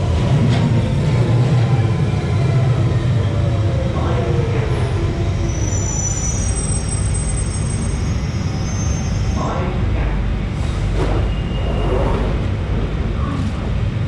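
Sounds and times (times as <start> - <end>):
train rumbling: 0.0 - 14.0
train wheel squeal: 4.8 - 9.7, 10.6 - 12.4.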